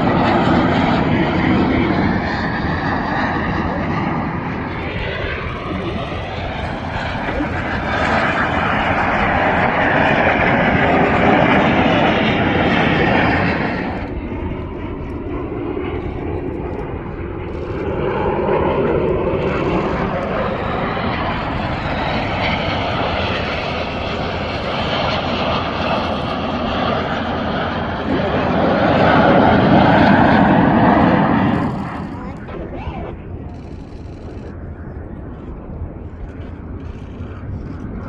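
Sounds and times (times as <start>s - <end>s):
jets flying past: 0.0s - 33.5s.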